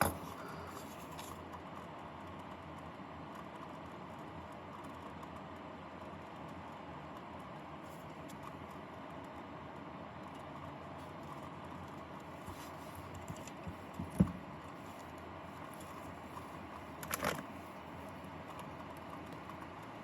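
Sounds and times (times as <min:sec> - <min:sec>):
small parts clicking and rustling: 0:00.0 - 0:01.5, 0:12.5 - 0:17.6
dull knock: 0:13.6 - 0:14.4.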